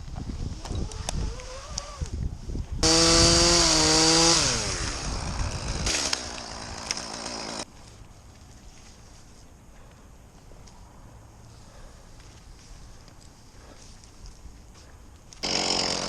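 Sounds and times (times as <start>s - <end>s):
chainsaw at full throttle: 2.8s - 7.7s, 15.4s - 16.0s.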